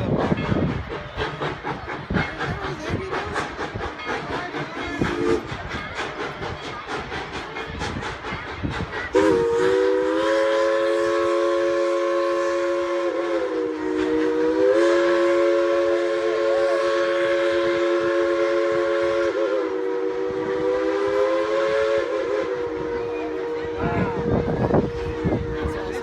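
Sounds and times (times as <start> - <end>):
steam locomotive rhythmic beats: 0.0 - 26.0
steam whistle chord: 9.1 - 23.4.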